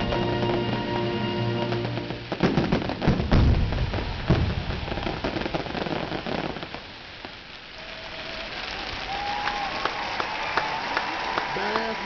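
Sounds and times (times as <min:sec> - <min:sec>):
firework bang: 0:00.0 - 0:07.0
firework crackling: 0:00.0 - 0:12.0.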